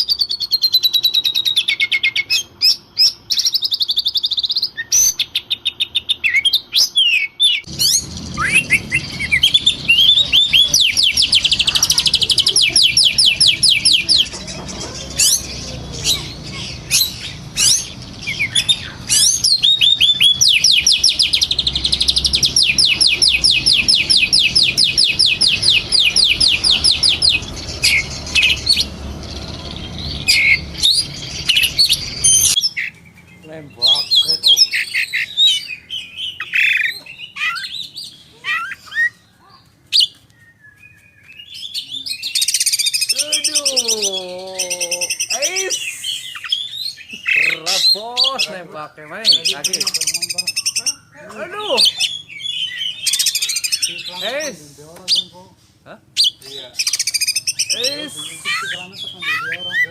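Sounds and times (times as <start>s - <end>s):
fast bird trills: 0.0s - 33.1s, 49.2s - 54.5s, 56.2s - 59.9s
songbird chirps and whistles: 0.0s - 43.8s, 44.9s - 48.4s, 49.3s - 54.4s, 56.2s - 59.9s.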